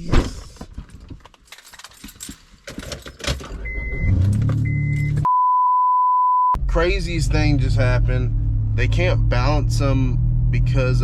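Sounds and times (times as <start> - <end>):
keys jangling and clicking: 0.9 - 3.7
censor bleep tone: 3.7 - 6.6
car engine running: 6.6 - 11.0.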